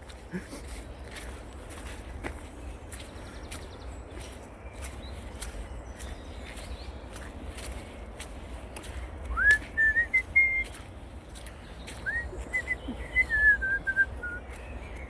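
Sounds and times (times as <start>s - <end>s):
person whistling a tune: 9.3s - 10.7s, 12.1s - 14.4s.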